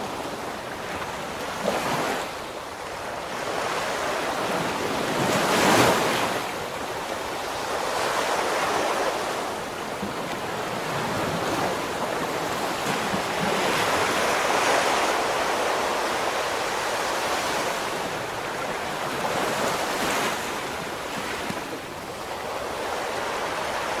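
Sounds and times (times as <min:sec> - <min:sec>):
ocean waves breaking: 0:07.2 - 0:24.0.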